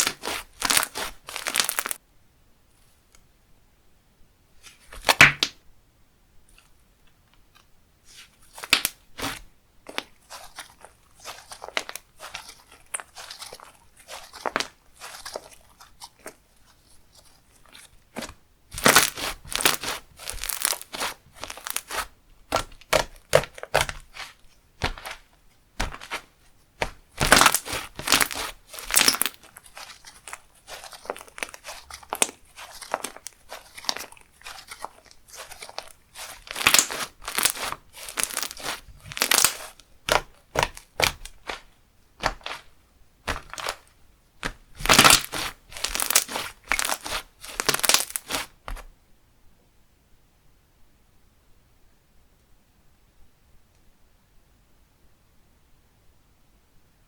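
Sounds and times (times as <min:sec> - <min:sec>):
slime squished by hand: 0:00.0 - 0:02.0, 0:08.1 - 0:16.4, 0:18.1 - 0:48.8
sticky crackling and popping: 0:00.0 - 0:02.0, 0:08.6 - 0:16.4, 0:17.7 - 0:48.8.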